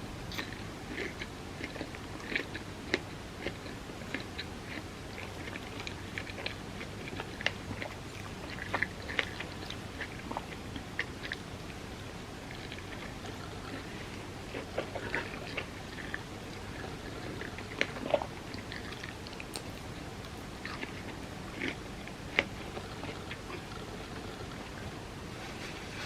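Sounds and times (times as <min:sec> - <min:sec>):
steady background hiss: 0:00.0 - 0:26.0
quiet chewing: 0:00.2 - 0:26.0.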